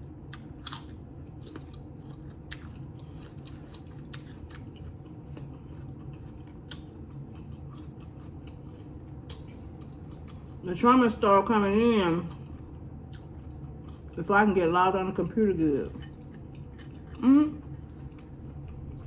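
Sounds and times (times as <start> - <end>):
chewing with wet mouth clicks: 0.2 - 10.6, 12.2 - 14.2, 15.8 - 19.0.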